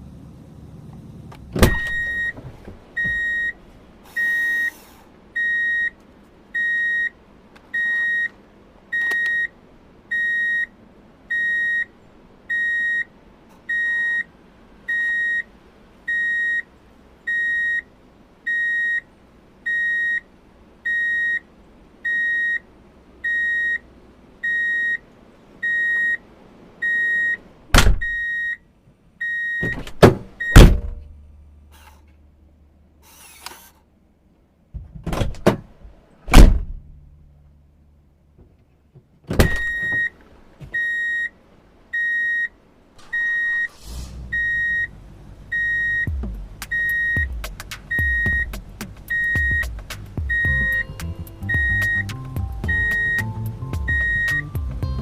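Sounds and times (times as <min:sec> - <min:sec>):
electronic beeping: 0:46.7 - 0:49.7, 0:50.3 - 0:54.6.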